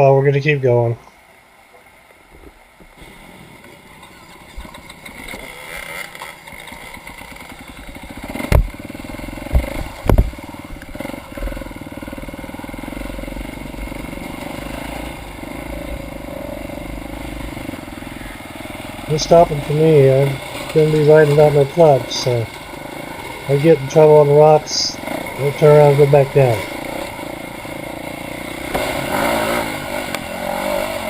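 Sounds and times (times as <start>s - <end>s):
motorcycle engine running: 2.5s - 31.0s
sharp knocks: 8.4s - 8.8s, 9.5s - 10.4s.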